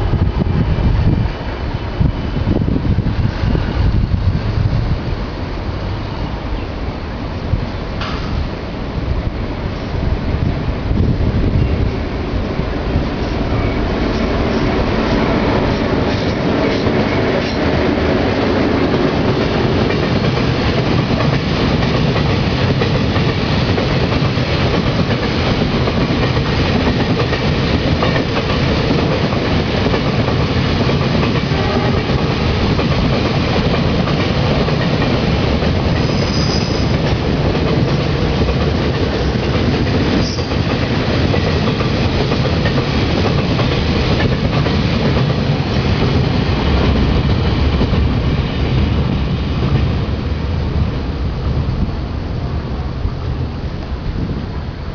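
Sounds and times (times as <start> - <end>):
high wheel squeal: 36.0 - 36.9.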